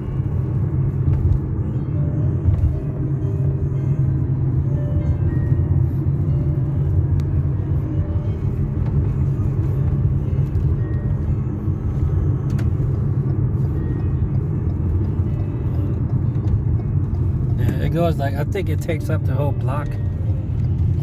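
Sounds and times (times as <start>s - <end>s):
car road rumble: 0.0s - 21.0s.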